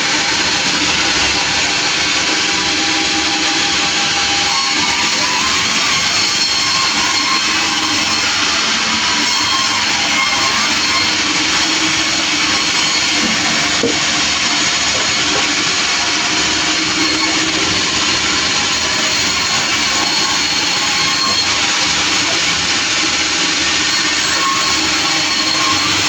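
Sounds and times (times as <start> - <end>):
sawmill machinery running: 0.0 - 26.0.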